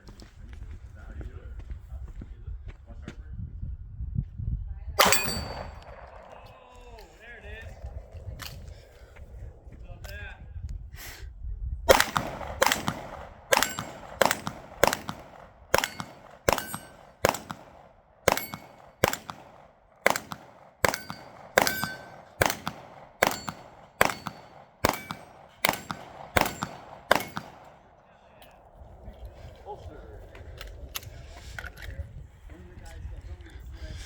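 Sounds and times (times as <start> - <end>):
metallic ring of target: 5.0 - 6.3, 12.0 - 17.6, 18.3 - 19.3, 20.1 - 27.6
gunshots in quick succession: 5.0 - 6.4, 11.9 - 28.0.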